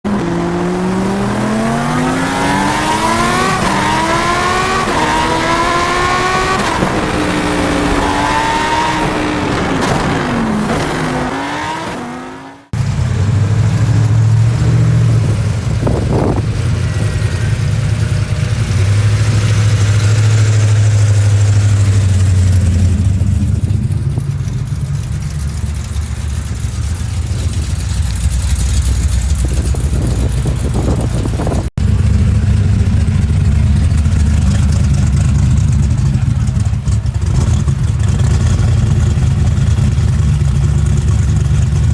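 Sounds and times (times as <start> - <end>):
car engine revving: 0.0 - 41.9
engine idling rumble: 12.7 - 41.9.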